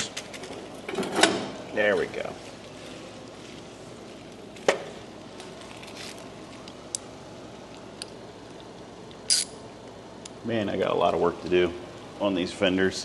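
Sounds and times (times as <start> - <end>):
workshop room noise: 0.0 - 13.0.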